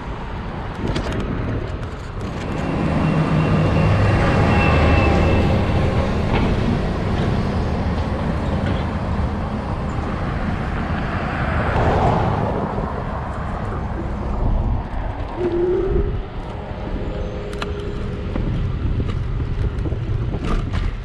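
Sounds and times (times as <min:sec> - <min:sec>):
road noise: 0:00.0 - 0:21.0
heavy low rumble: 0:02.2 - 0:21.0.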